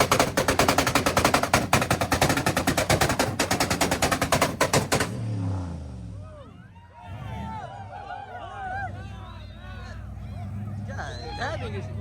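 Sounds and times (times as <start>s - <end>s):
car exhaust crackling and popping: 0.0s - 5.3s
engine droning: 0.0s - 12.0s.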